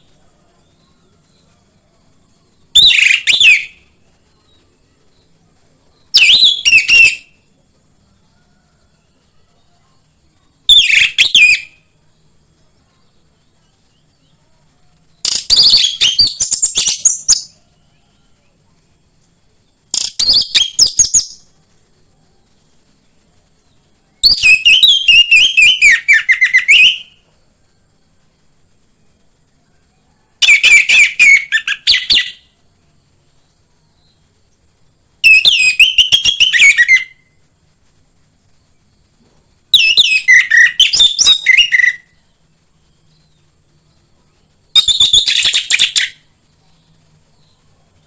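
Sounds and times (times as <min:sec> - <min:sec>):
faint high hiss: 0:00.0 - 0:48.0.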